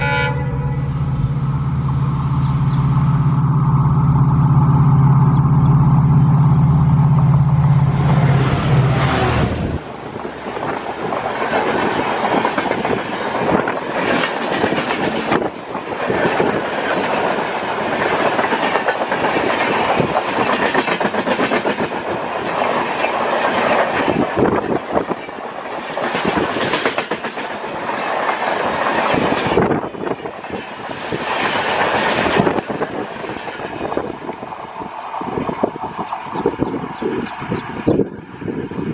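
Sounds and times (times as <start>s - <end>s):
train passing at speed: 0.0s - 38.9s.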